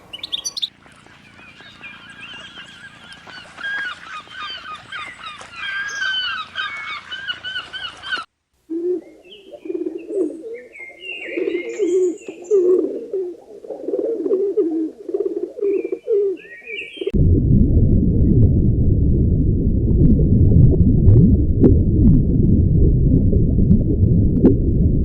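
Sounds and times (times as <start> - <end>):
geese honking: 0.0 - 8.3
small birds chirping: 0.0 - 8.3
low cooing bird calls: 0.0 - 17.2.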